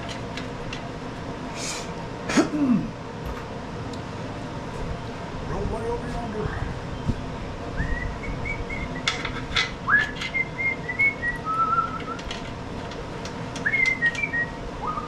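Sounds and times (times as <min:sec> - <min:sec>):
man whistling a slow tune: 0:07.8 - 0:09.2, 0:09.9 - 0:12.2, 0:13.6 - 0:15.0.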